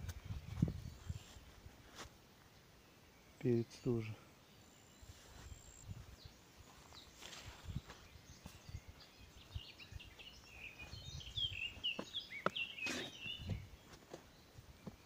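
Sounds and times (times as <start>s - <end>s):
small songbird singing: 0.0s - 1.6s, 2.4s - 15.0s
footsteps thudding and rustling: 0.0s - 2.1s, 6.7s - 8.8s, 10.2s - 15.0s.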